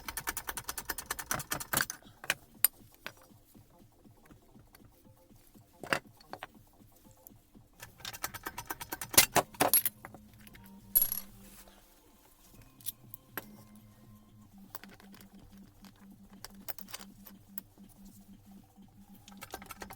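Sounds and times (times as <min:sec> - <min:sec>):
metal tools clinking and rattling: 0:07.8 - 0:11.5, 0:14.7 - 0:17.6.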